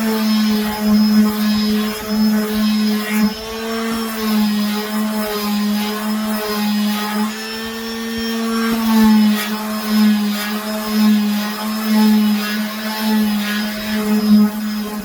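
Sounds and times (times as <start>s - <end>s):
electric sander on wood: 0.0s - 15.0s.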